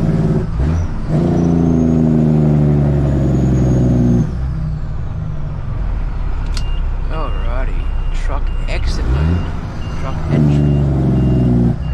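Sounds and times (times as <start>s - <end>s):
diesel truck engine running: 0.0s - 11.9s.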